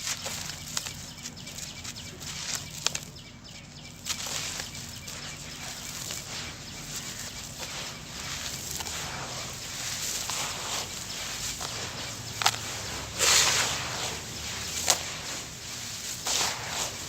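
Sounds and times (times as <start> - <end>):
gritty crunching and trickling: 0.0 - 17.0
dried cement cracking: 4.0 - 17.0.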